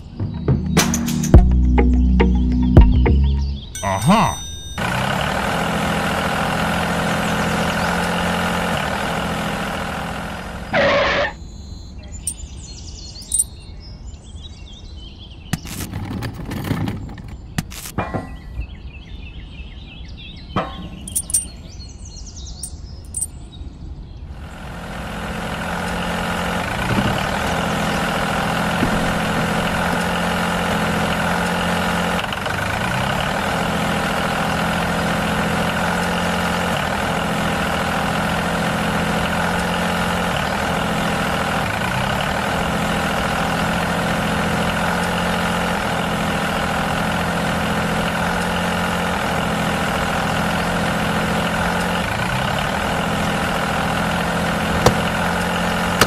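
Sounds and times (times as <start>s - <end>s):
tractor engine running: 0.0s - 11.4s, 12.1s - 13.6s, 15.6s - 18.6s, 20.6s - 21.8s, 22.5s - 23.3s, 24.3s - 56.0s.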